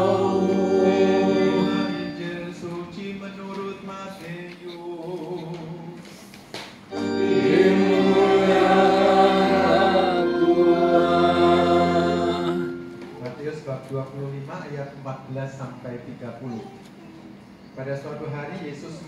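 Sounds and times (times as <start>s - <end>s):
choir singing a hymn: 0.0s - 2.7s, 6.9s - 13.0s
low held accompaniment notes: 0.0s - 3.2s, 6.9s - 13.7s.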